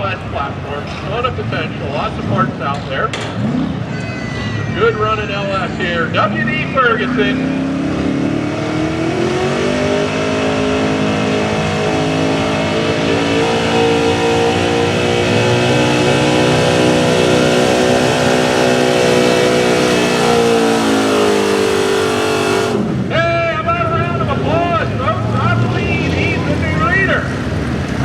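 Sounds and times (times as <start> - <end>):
truck engine revving under load: 0.0 - 4.0, 4.8 - 23.1.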